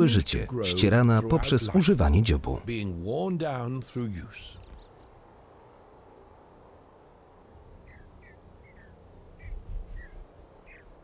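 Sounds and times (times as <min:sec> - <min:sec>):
faint outdoor hiss: 0:00.0 - 0:11.0
small bird chirping: 0:04.5 - 0:05.3, 0:07.7 - 0:11.0.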